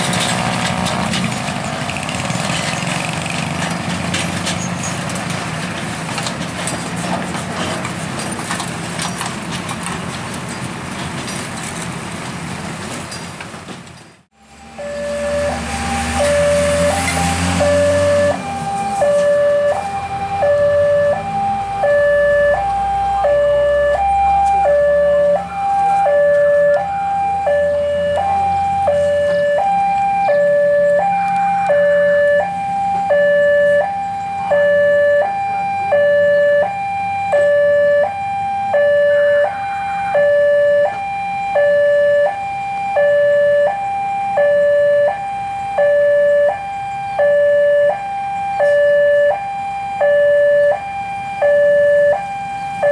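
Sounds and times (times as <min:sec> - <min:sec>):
level crossing two-tone alarm: 0:14.6 - 0:52.9.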